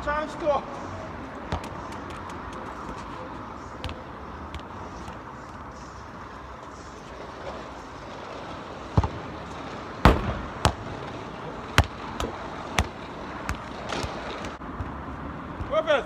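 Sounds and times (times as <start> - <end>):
street traffic: 0.0 - 16.0
football kicked and bouncing: 1.5 - 5.3, 8.9 - 9.4, 10.0 - 11.1, 11.7 - 16.0.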